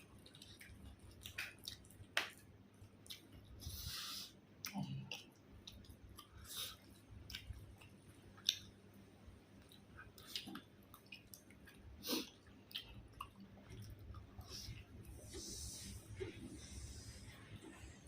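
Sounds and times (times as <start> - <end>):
person chewing and smacking: 0.0 - 3.7, 4.6 - 8.8, 9.4 - 15.4.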